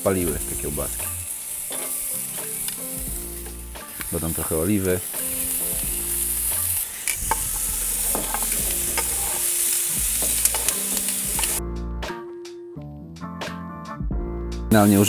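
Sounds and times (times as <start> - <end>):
sausages sizzling in oil: 0.0 - 11.6
soft background music: 0.0 - 15.0.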